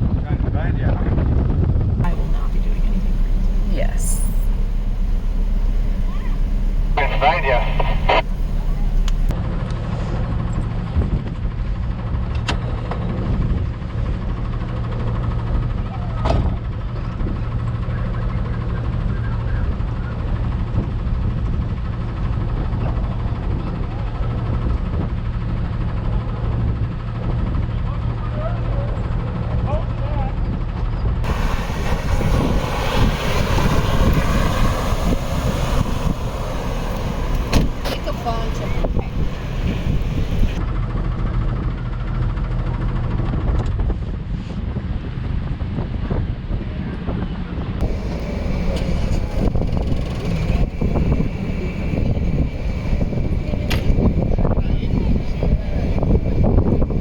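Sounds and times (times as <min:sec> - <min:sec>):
car engine idling: 0:02.1 - 0:09.3, 0:31.2 - 0:40.6, 0:47.8 - 0:57.0
faint clicks: 0:04.4 - 0:09.3
wind rumbling on microphone: 0:31.2 - 0:40.6, 0:45.0 - 0:57.0.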